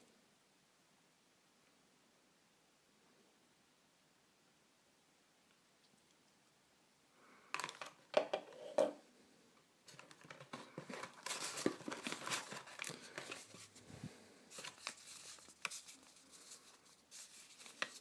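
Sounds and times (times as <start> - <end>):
packaging crinkling: 9.9 - 13.8, 14.5 - 18.0.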